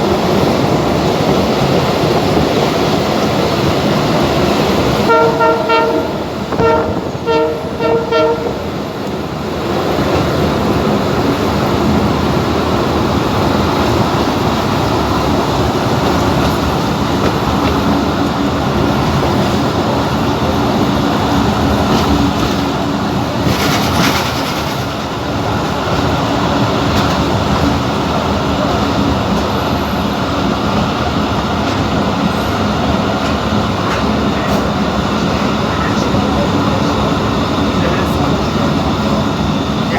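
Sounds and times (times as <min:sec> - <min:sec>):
train rumbling on rails: 0:00.0 - 0:39.9
train horn blasts: 0:05.0 - 0:08.7.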